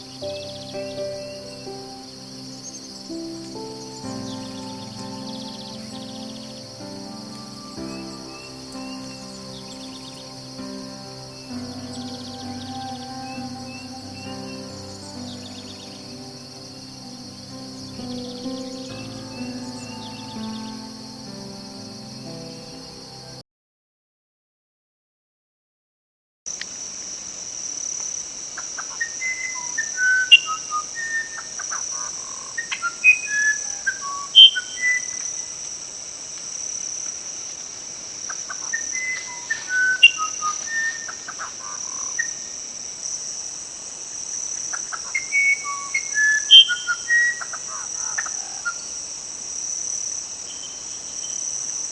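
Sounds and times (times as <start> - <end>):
songbird whistling: 0.0 - 21.6
insect chorus: 0.0 - 23.4, 26.5 - 51.9.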